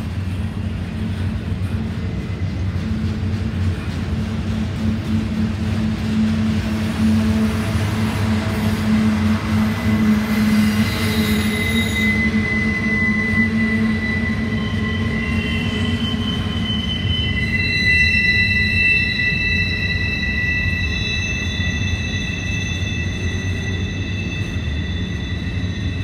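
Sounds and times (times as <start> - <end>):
train wheels rumbling on rail: 0.0 - 26.0
high-pitched wheel squeal: 6.1 - 26.0.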